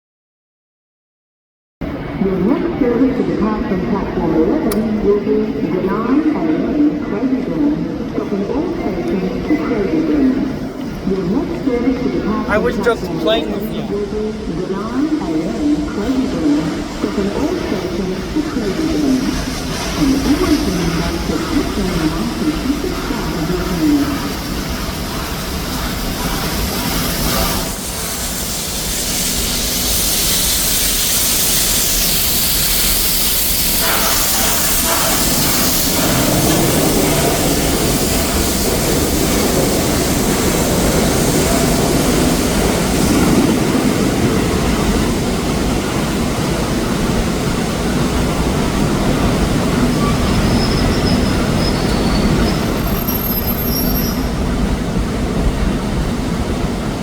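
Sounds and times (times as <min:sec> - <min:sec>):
train rumbling on rails: 0:01.8 - 0:57.0
train high hiss: 0:11.8 - 0:57.0
high wheel squeals: 0:49.9 - 0:54.4.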